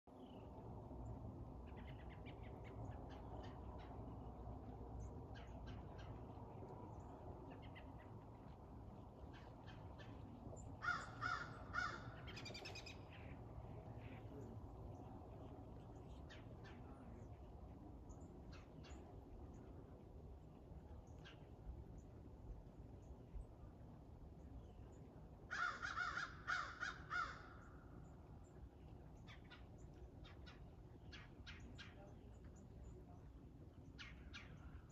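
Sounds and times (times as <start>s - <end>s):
bird cawing harshly: 10.8s - 12.2s, 25.5s - 27.6s
faint high bird calls: 10.8s - 14.6s.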